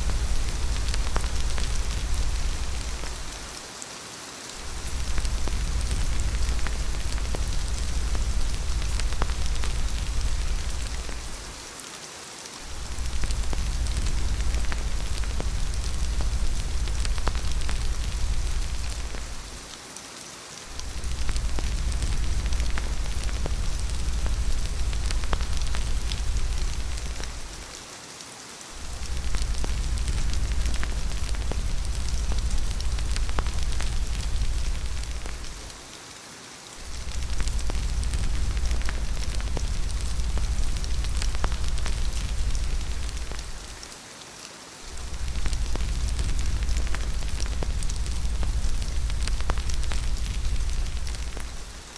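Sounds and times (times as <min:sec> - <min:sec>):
deep low rumble: 0:00.0 - 0:03.5, 0:04.6 - 0:11.5, 0:12.7 - 0:19.6, 0:20.7 - 0:27.7, 0:28.8 - 0:35.8, 0:36.8 - 0:43.8, 0:44.9 - 0:51.8
steady rain: 0:00.0 - 0:51.9.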